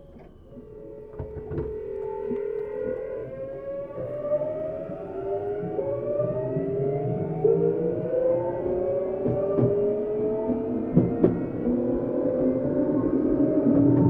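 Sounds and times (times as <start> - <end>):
train knocks: 0.0 - 5.9, 9.1 - 11.9
electric train motor whine: 0.0 - 14.0.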